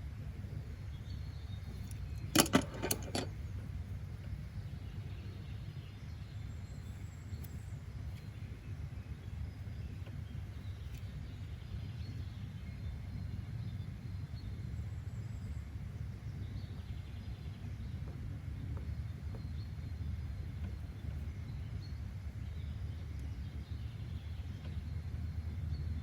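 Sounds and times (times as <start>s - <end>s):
sharp clicks or knocks: 2.2s - 3.3s.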